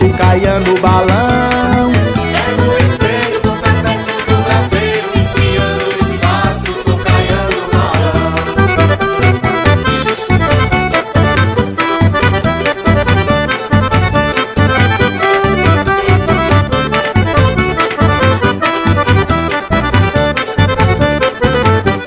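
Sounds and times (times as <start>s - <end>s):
accordion melody: 0.0s - 22.0s
bass and percussion beat: 0.0s - 22.0s.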